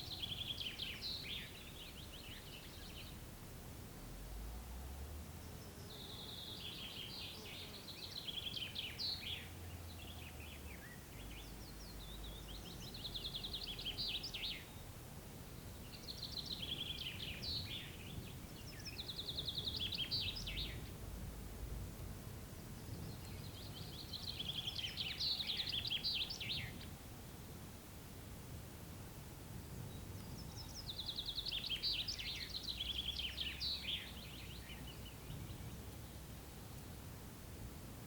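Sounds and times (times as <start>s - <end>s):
songbird singing trilled phrases: 0.0s - 3.2s, 5.4s - 14.9s, 15.6s - 21.0s, 22.8s - 26.9s, 29.8s - 36.2s
faint low rumble: 1.6s - 6.4s, 9.4s - 24.8s.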